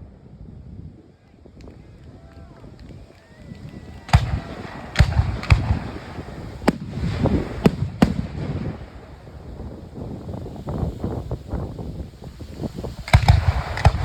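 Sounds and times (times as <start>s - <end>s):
fireworks bangs: 2.8s - 14.0s.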